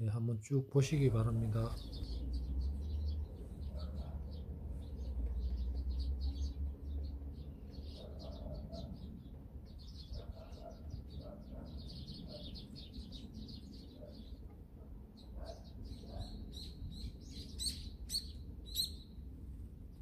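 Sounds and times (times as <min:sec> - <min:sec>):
small birds chirping: 0:00.8 - 0:20.0
low rumble: 0:00.9 - 0:07.5.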